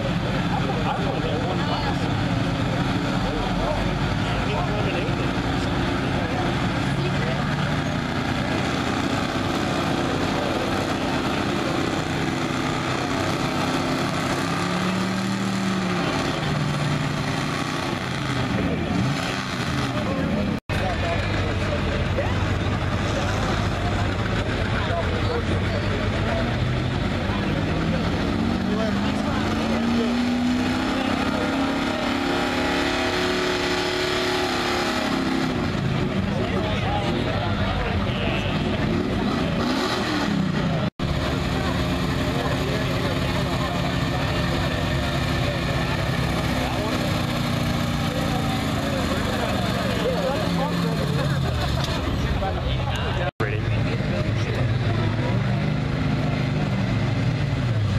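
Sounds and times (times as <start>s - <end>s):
pickup truck engine running hard: 0.0s - 57.9s.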